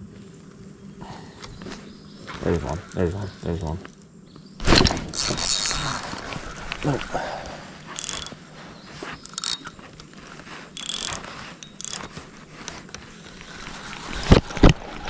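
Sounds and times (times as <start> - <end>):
fishing reel ratcheting: 5.1 - 7.1, 7.9 - 8.4, 9.2 - 9.7, 10.7 - 12.2.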